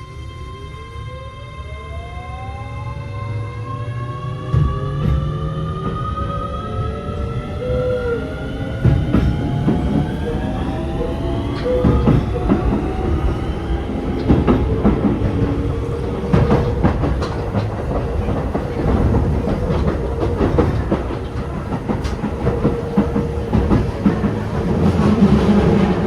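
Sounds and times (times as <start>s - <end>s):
train wheels clicking over rail joints: 8.6s - 26.0s.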